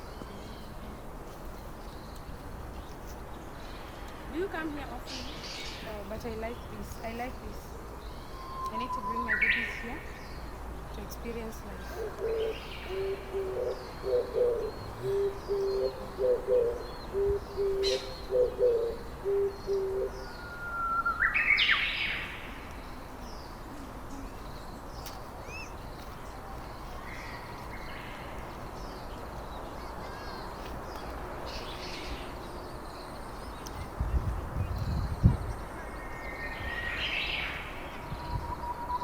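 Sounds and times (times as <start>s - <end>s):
bird hooting: 12.0s - 21.4s.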